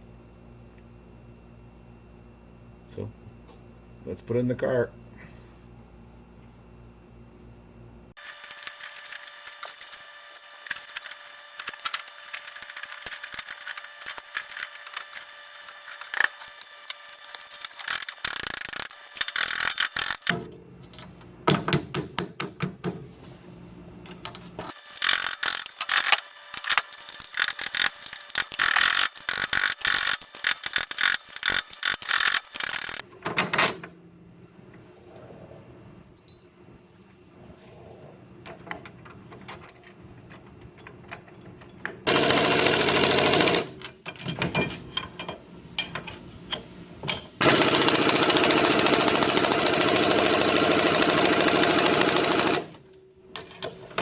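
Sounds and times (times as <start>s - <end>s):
ratchet wrench clicking: 17.6s - 20.3s, 24.8s - 33.0s.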